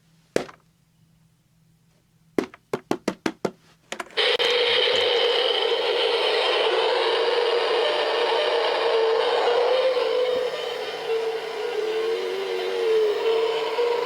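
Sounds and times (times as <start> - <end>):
toy motor whirring: 4.2 - 14.0.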